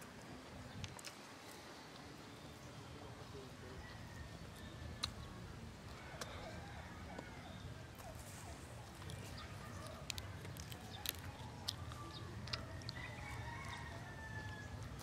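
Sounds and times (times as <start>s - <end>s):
wet chewing: 5.9s - 6.6s, 8.0s - 15.0s
lip smacks: 8.9s - 13.8s.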